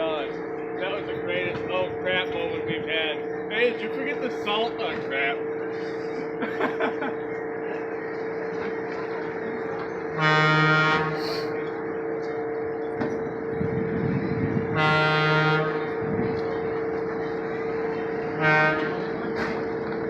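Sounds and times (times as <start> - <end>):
steady running hum: 0.0 - 20.0
train horn blasts: 10.0 - 11.6, 14.6 - 16.1, 18.2 - 19.2.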